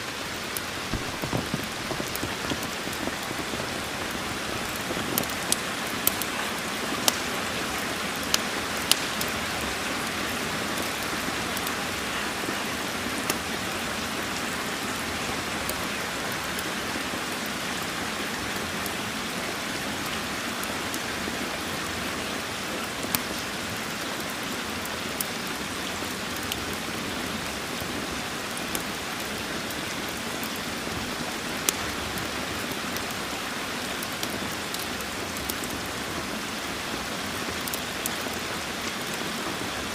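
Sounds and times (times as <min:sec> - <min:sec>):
rain falling: 0:00.0 - 0:39.9
wood fire crackling: 0:00.0 - 0:39.9.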